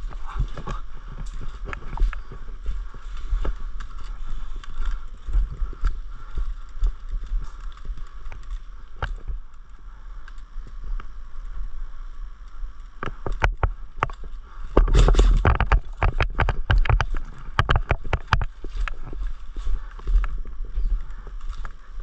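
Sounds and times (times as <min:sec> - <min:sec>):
sharp clicks and knocks: 0:13.0 - 0:19.0.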